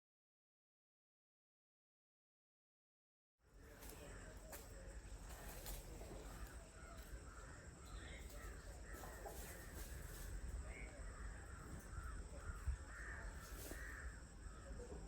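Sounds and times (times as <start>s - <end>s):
outdoor background noise: 3.4s - 15.0s
faint bird calls: 3.5s - 15.0s.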